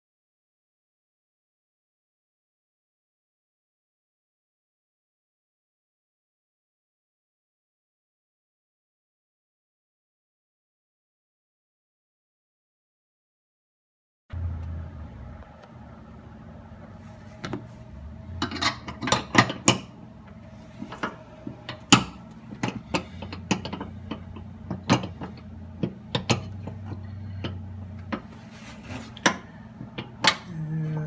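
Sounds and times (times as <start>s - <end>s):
low steady hum: 14.3s - 31.0s.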